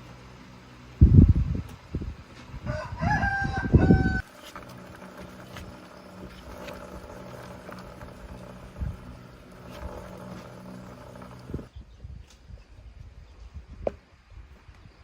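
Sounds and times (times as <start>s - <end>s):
rooster crowing: 2.6s - 4.3s.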